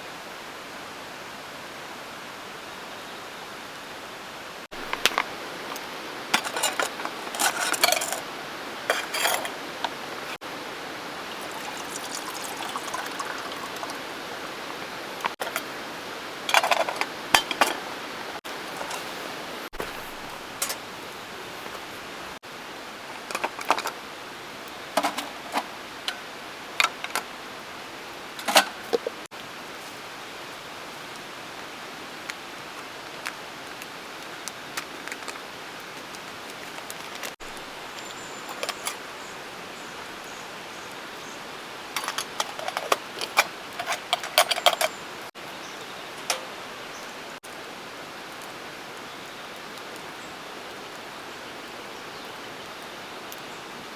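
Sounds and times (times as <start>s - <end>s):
steady rushing hiss: 4.3s - 49.1s
metal cookware clinking: 4.7s - 10.0s, 11.4s - 14.2s, 15.2s - 15.8s, 16.5s - 18.0s, 18.6s - 20.9s, 25.0s - 27.3s, 28.4s - 29.2s, 37.4s - 39.1s, 42.0s - 45.3s, 46.0s - 47.0s.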